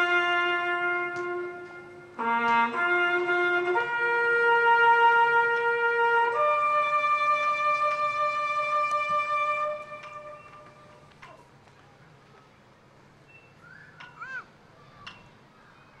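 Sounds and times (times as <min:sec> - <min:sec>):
brass horn playing long notes: 0:00.0 - 0:10.9.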